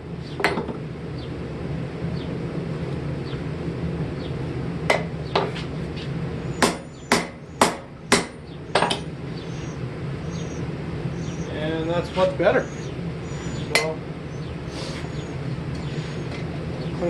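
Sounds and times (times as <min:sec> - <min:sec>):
hammer striking hot steel on anvil: 0:04.9 - 0:05.5, 0:06.6 - 0:09.1, 0:13.7 - 0:14.0.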